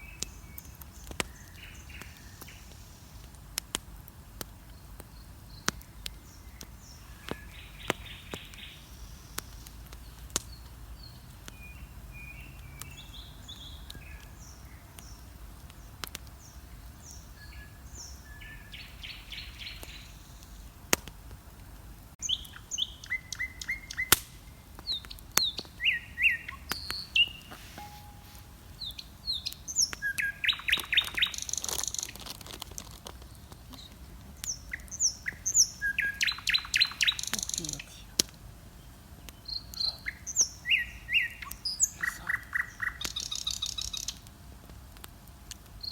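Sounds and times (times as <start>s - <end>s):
bonfire crackling and popping: 0.0s - 45.9s
birds chirping and singing: 24.9s - 32.2s, 33.7s - 38.0s.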